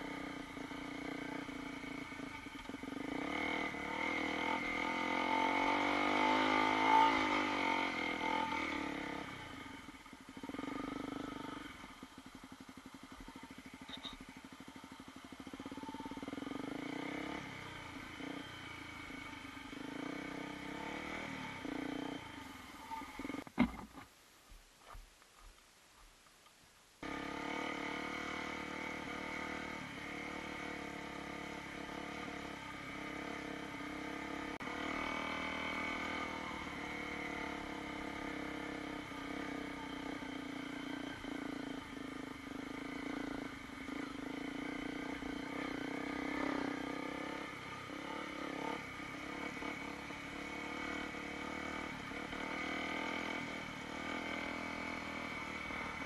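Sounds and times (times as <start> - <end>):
motorcycle engine running: 0.0 - 24.1, 27.0 - 56.0.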